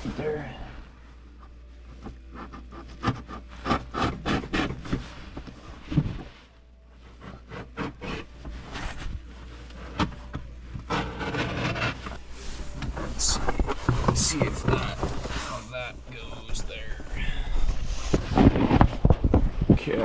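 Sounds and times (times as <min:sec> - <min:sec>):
blade rasping through carpet: 0:02.3 - 0:06.0, 0:07.0 - 0:09.1, 0:10.8 - 0:12.2.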